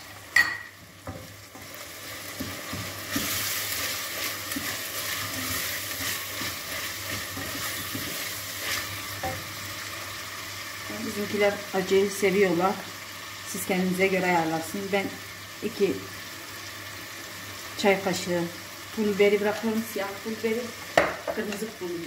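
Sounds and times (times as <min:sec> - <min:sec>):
food sizzling in oil: 0:00.0 - 0:22.0
wooden spoon stirring: 0:01.0 - 0:09.4.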